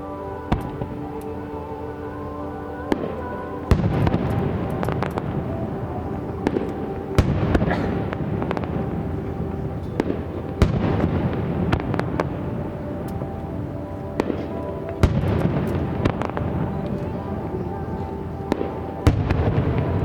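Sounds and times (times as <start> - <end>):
crackling rumble of fireworks: 0.0 - 20.0
fireworks booming: 2.9 - 20.0.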